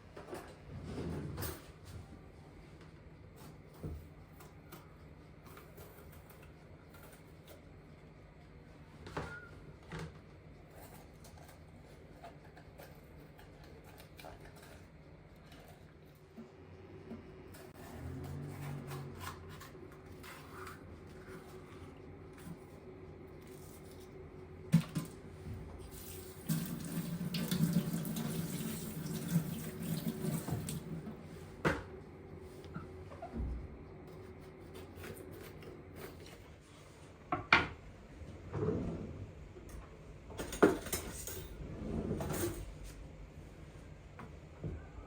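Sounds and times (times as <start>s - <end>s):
kitchen tap running into sink: 25.9s - 31.0s.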